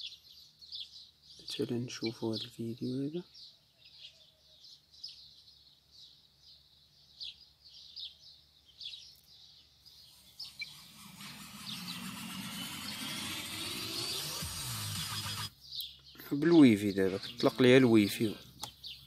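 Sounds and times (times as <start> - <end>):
small birds chirping faintly: 0.0 - 19.0.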